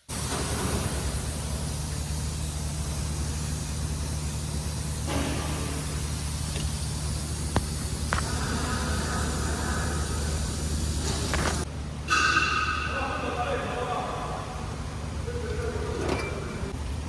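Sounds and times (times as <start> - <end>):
car engine running: 0.3 - 11.7.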